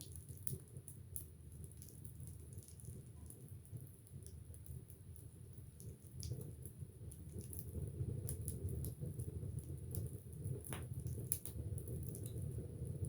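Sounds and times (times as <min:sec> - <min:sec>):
rumble of flames: 0:00.1 - 0:13.0.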